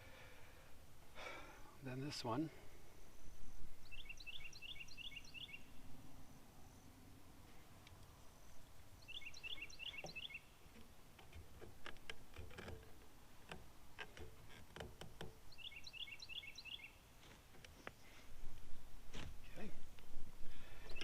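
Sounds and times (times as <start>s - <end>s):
songbird chirping: 1.8s - 12.2s, 12.8s - 18.3s, 20.5s - 21.0s.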